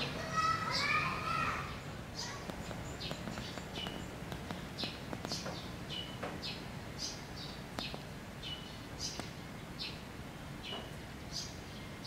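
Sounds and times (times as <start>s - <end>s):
low steady background noise: 0.0s - 12.0s
small bird chirping: 1.6s - 10.0s.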